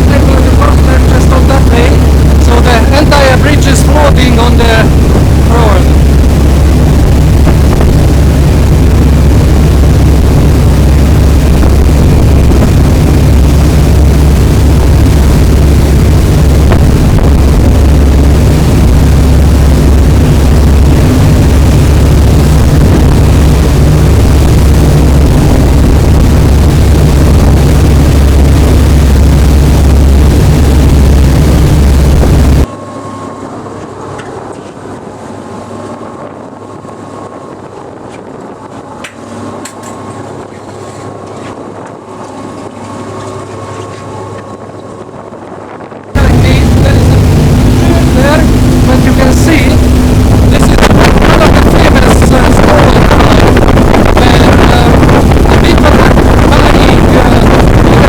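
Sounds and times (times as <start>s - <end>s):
vehicle rumbling: 0.0s - 32.9s, 46.2s - 58.0s.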